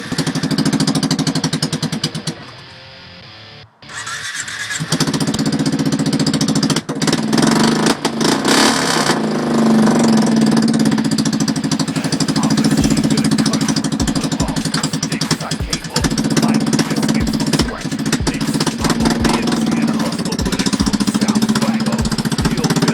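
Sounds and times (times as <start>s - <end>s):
atv engine starting and revving: 4.0s - 14.8s.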